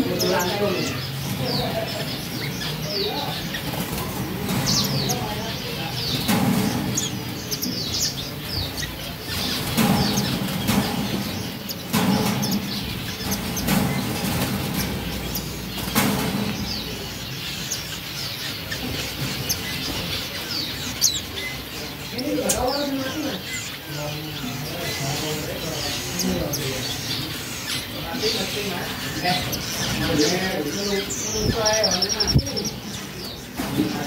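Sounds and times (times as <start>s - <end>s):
finches chirping: 0.0s - 34.0s
wings fluttering: 8.5s - 17.3s.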